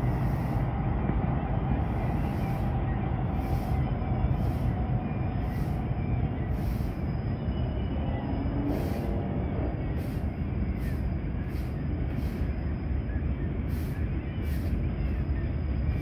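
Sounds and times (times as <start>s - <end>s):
freight train rumbling over bridge: 0.0s - 16.0s.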